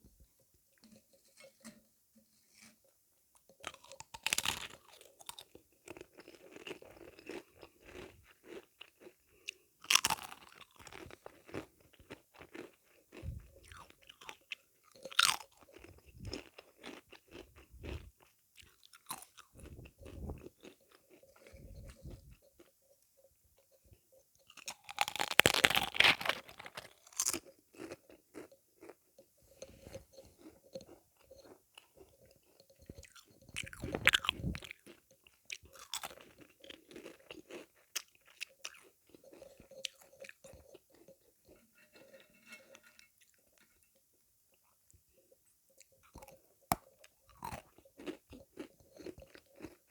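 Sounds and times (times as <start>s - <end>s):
sweets being chewed: 3.4s - 23.0s, 23.6s - 49.9s
loud crunchy bites: 24.9s - 28.4s, 33.0s - 34.8s.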